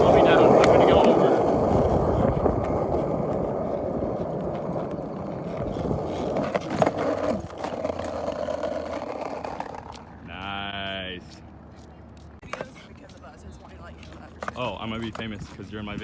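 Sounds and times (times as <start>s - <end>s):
wheels rattling over bumpy surface: 0.0s - 10.2s.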